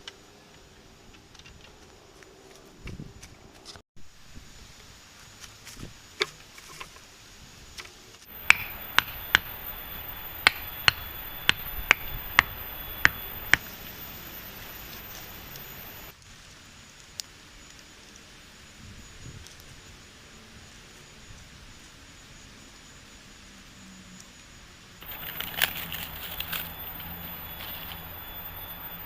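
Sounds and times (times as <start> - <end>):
steady hiss: 4.0 - 23.4
tool striking wood: 8.3 - 13.6.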